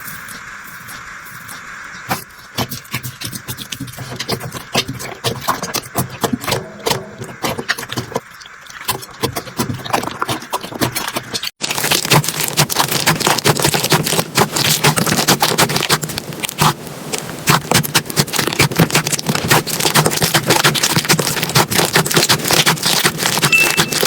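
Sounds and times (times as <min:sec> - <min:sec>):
slime crackling and popping: 0:09.8 - 0:24.0.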